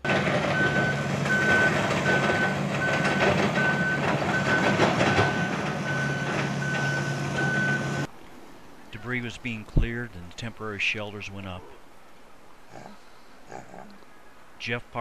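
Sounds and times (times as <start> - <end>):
clatter: 0.0 - 6.8
heavy vehicle engine running: 0.0 - 8.1
backup alarm beeping: 0.5 - 8.1.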